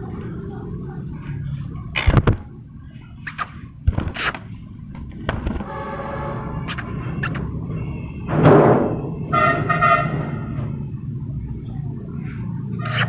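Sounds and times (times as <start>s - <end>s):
parakeet harsh squawk: 3.2s - 4.4s, 6.6s - 7.5s, 12.8s - 13.0s
parakeet calling: 3.2s - 4.6s, 6.5s - 8.2s, 12.8s - 13.0s.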